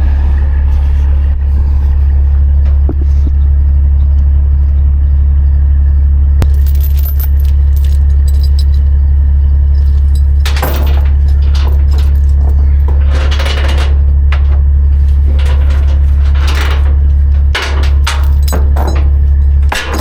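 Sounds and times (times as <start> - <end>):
diesel engine idling: 0.0 - 20.0
load chains clanking: 6.4 - 20.0.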